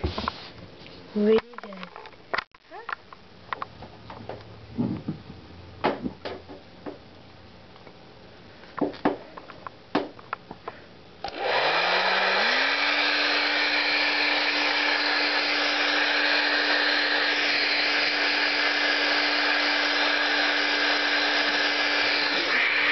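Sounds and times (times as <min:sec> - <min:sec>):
hair dryer motor whine: 0:11.2 - 0:22.9.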